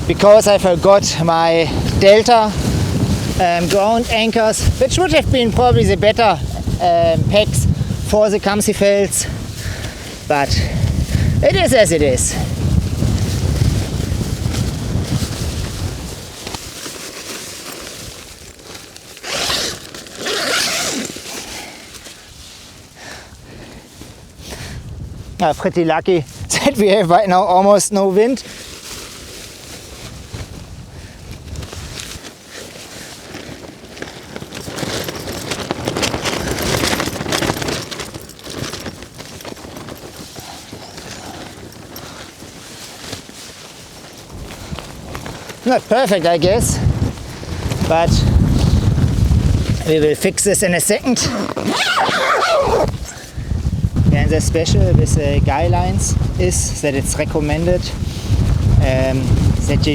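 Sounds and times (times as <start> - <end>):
tent fabric crackling and rustling: 0.0 - 59.9
zipper pulled: 19.2 - 21.7, 31.7 - 43.3, 44.0 - 50.2, 50.8 - 53.4.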